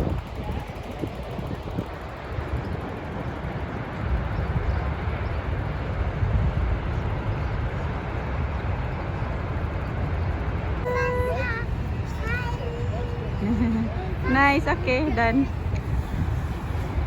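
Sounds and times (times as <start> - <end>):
waterfall roaring: 10.7 - 17.0.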